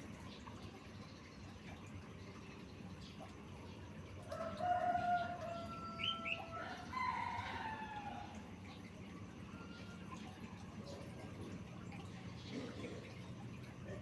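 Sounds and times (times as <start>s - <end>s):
rooster crowing: 4.4s - 8.4s.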